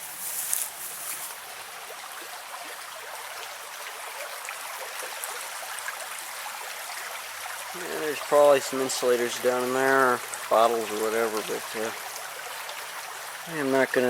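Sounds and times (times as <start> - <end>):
footstep crunching in leaves: 0.0 - 1.4
creek water flowing: 0.0 - 14.0.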